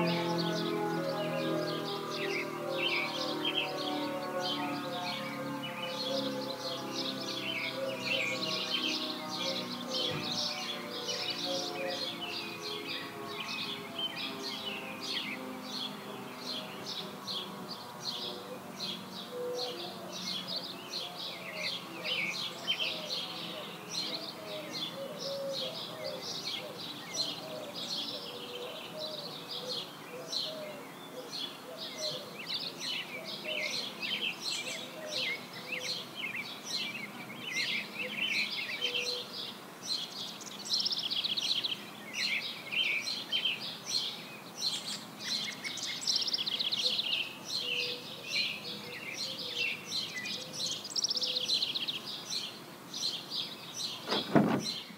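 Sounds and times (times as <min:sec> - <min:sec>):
outdoor background noise: 0:00.0 - 0:54.9
songbirds chirping and singing: 0:00.0 - 0:54.9.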